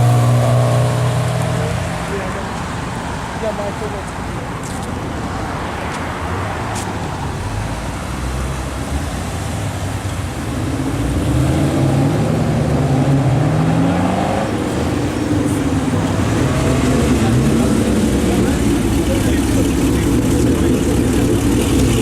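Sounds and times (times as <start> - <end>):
cars driving past: 0.0 - 22.0
car engine accelerating: 10.3 - 22.0.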